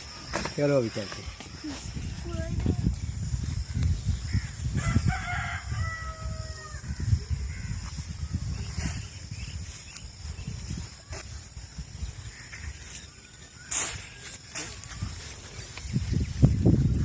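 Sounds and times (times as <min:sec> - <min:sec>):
rooster crowing: 0:04.7 - 0:07.0.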